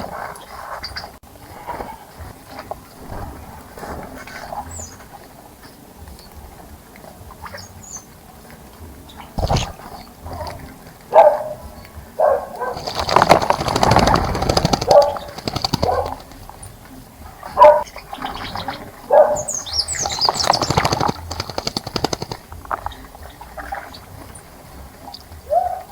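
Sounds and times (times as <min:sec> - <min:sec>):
water splashing: 0:00.0 - 0:25.9
bird wings fluttering: 0:09.4 - 0:11.9, 0:12.5 - 0:25.4
faint high bird chirps: 0:15.0 - 0:25.9.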